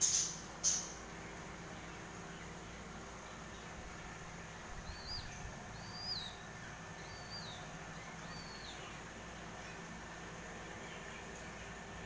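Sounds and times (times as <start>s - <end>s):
bird whistling: 4.8s - 6.4s, 7.0s - 8.9s.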